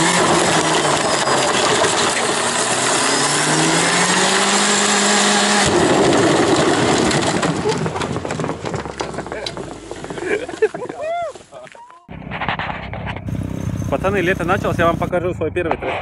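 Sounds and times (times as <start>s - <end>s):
car engine at high revs: 0.0s - 5.9s, 12.1s - 15.2s
wheels spinning on dirt: 0.0s - 11.5s, 12.1s - 15.2s.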